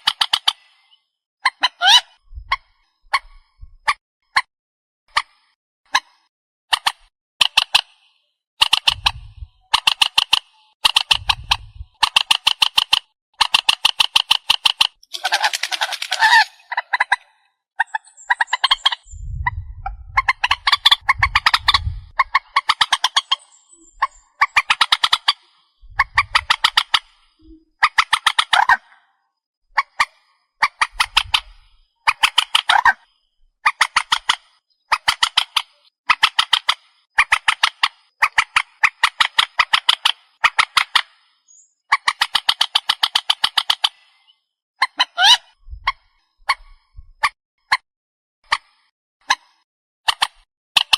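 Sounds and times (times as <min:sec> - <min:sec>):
swamphen harsh cackling calls: 0:01.4 - 0:02.2, 0:15.1 - 0:19.0, 0:20.2 - 0:23.5, 0:24.4 - 0:27.1, 0:27.8 - 0:29.0, 0:32.1 - 0:33.0, 0:44.8 - 0:46.0
low rumbling: 0:19.1 - 0:22.2.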